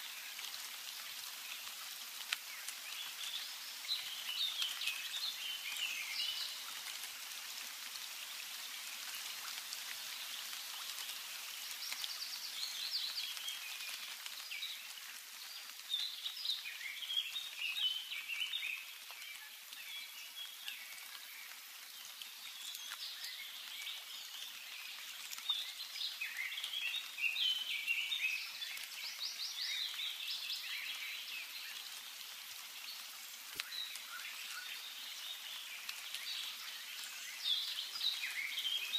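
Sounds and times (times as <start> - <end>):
songbirds chirping and trilling: 1.0 - 6.8.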